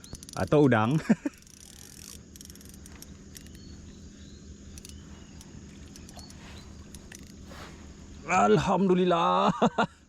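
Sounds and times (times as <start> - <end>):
insect chirps: 0.0 - 10.0
steady low hum: 0.0 - 10.0
soft ticks: 1.4 - 3.7.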